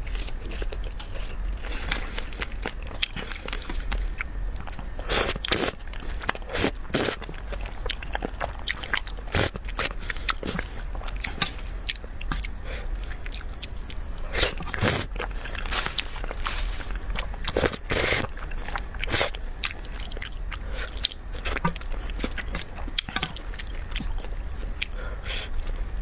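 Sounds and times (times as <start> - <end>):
close chewing and biting: 14.2 - 25.5.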